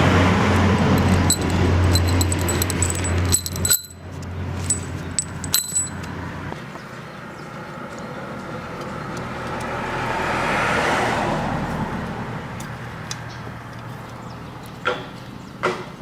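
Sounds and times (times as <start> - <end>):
small metal parts clinking: 0.8 - 6.2.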